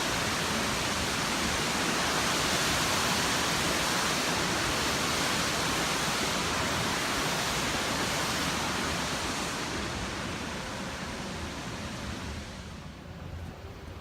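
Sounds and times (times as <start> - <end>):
waterfall roaring: 0.0 - 14.0.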